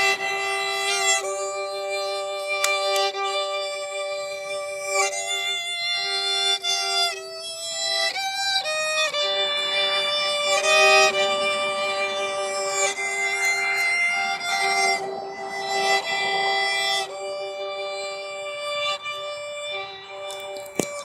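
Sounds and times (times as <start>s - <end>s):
solo violin melody: 0.0s - 21.0s
low drone note: 9.4s - 21.0s.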